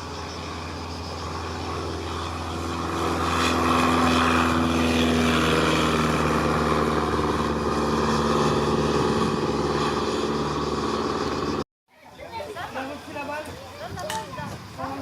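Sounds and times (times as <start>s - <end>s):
propeller aircraft engine: 0.0s - 11.7s.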